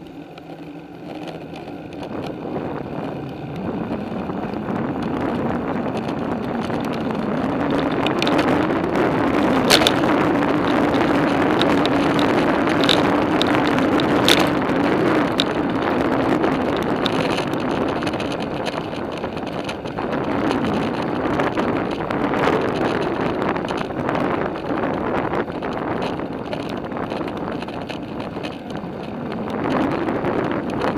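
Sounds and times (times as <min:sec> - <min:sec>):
bicycle tyre noise: 0:00.0 - 0:30.9
low hum: 0:00.0 - 0:30.9
wind on microphone: 0:00.0 - 0:30.9.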